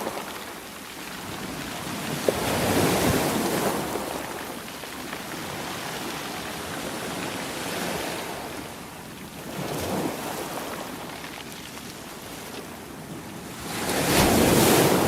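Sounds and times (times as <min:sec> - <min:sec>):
sea waves breaking: 0:00.0 - 0:11.1, 0:13.5 - 0:15.0.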